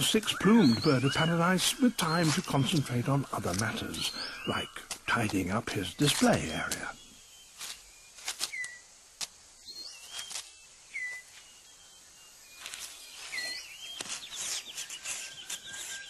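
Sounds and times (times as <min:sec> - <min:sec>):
whistled bird calls: 0:00.0 - 0:03.0, 0:03.6 - 0:04.9, 0:06.3 - 0:08.9, 0:09.6 - 0:16.0
leaves and twigs rustling: 0:00.0 - 0:16.0
dry clicks: 0:04.8 - 0:06.9.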